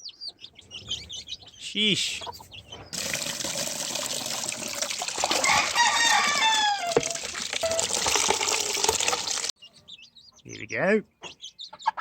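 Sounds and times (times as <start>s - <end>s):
water running from a tap: 3.0s - 9.5s
rooster crowing: 5.3s - 7.2s.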